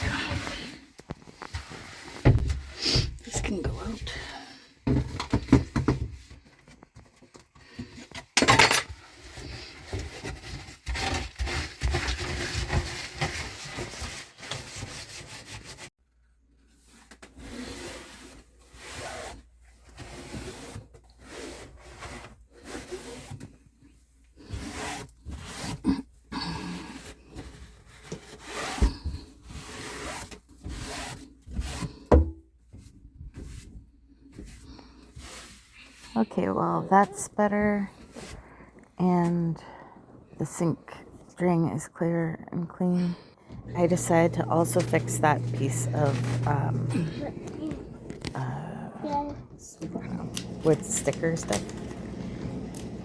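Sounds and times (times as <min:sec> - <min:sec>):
items knocking and clattering: 0:04.8 - 0:09.0
rubbing and scrubbing: 0:09.0 - 0:16.0, 0:32.7 - 0:38.7, 0:43.4 - 0:53.0.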